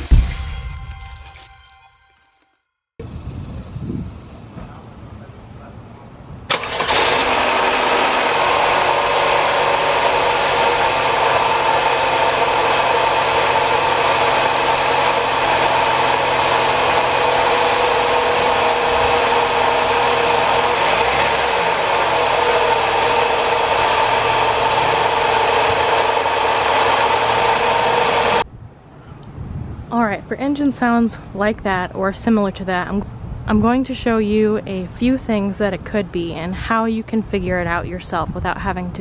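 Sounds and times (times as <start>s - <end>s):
constant whine: 3.0s - 28.5s
car engine idling: 4.2s - 28.4s.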